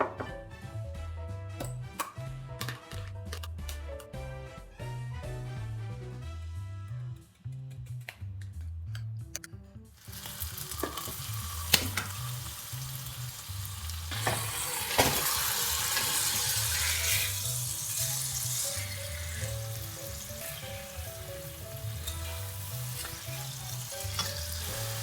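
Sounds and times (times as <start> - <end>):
food sizzling in oil: 10.0 - 25.0
utensil clicking against pan: 22.0 - 25.0.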